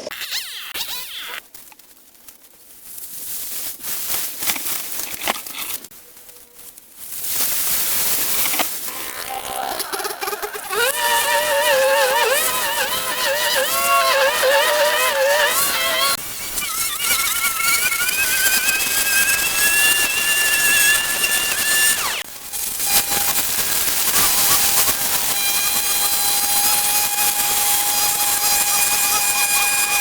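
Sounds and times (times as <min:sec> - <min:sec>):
cutting tool engine revving: 0:08.5 - 0:22.3.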